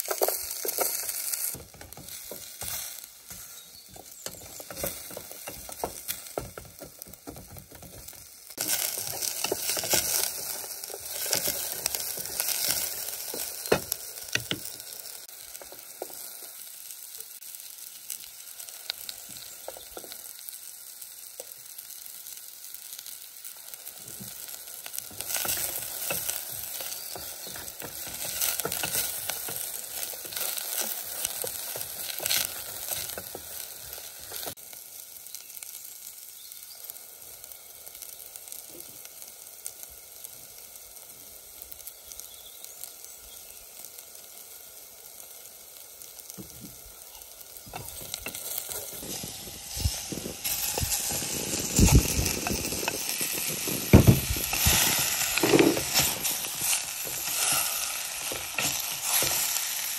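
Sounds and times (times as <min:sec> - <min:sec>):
utensil tapping and scraping: 0:00.0 - 0:14.8, 0:25.0 - 0:33.6, 0:47.6 - 0:59.4
food sizzling in a pan: 0:00.0 - 0:59.9.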